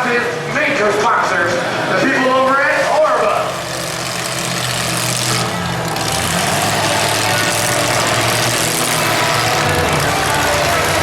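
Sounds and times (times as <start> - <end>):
truck engine running at low revs: 0.0 - 11.0.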